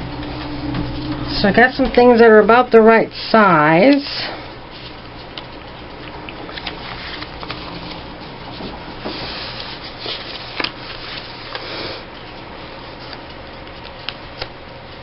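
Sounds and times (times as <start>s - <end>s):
paper rustling: 4.7s - 14.5s.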